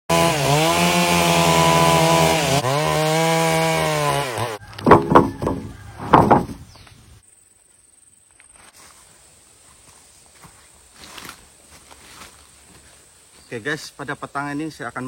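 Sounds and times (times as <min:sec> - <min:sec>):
chainsaw cutting wood: 0:00.1 - 0:06.5
loud knocks: 0:04.8 - 0:06.7.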